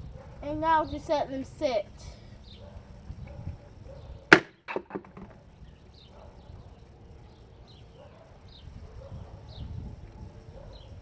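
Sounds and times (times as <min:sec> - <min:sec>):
sharp knock: 0:04.3 - 0:05.3.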